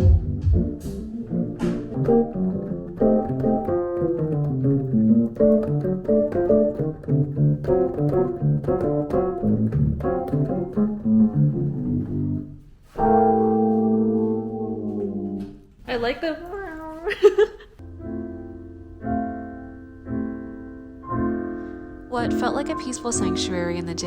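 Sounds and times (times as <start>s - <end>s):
organ-like keyboard chords and melody: 0.0s - 4.0s.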